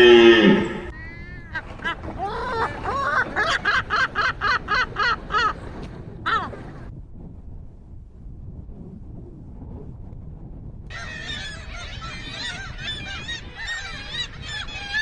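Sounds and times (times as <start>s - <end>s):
bird calling: 0.0s - 1.9s, 10.9s - 15.0s.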